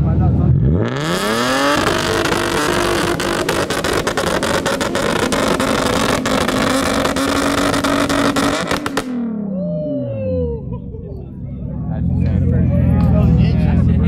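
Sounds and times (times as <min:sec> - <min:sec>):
car engine at high revs: 0:00.0 - 0:09.5
exhaust crackling: 0:00.0 - 0:09.7.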